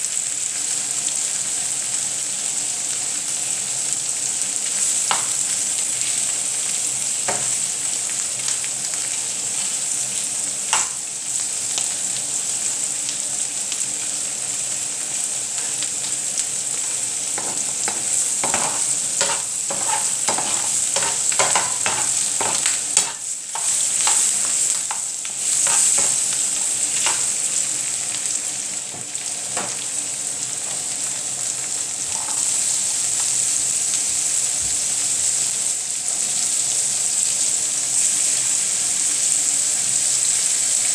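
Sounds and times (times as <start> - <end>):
omelette sizzling in a frying pan: 0.0 - 40.9
utensil scraping and tapping pan: 17.4 - 27.4.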